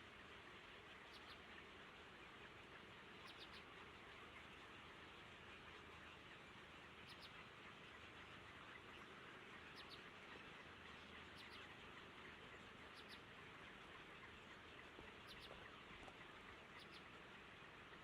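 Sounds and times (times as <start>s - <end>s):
steady background hiss: 0.0s - 18.0s
faint high bird chirps: 1.0s - 1.5s, 3.2s - 3.7s, 7.0s - 7.4s, 9.6s - 11.8s, 12.8s - 13.3s, 15.1s - 16.1s, 16.7s - 17.1s.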